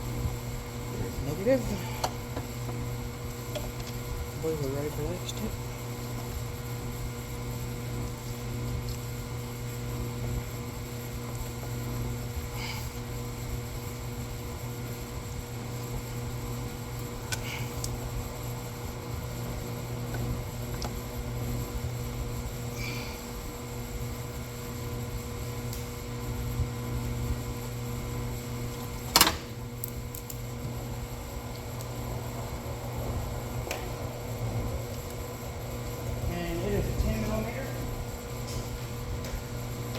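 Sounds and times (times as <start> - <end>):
fan humming: 0.0 - 39.9.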